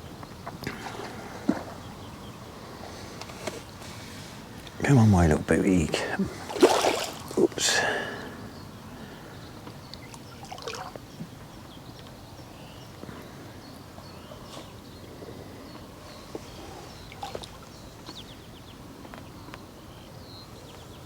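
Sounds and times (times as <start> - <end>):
faint bird chirps: 7.3 - 21.0.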